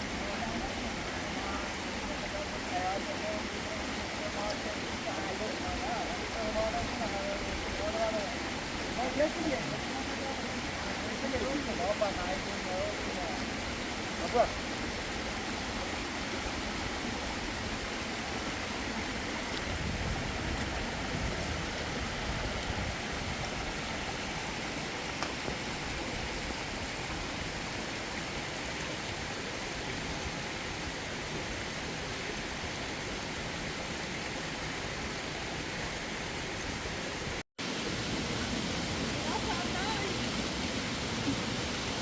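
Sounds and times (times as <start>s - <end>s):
mountain stream rushing: 0.0s - 42.0s.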